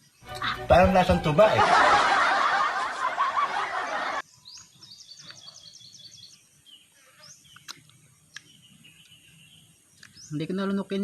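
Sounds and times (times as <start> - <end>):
bird chirping: 0.0 - 1.3, 3.8 - 11.0.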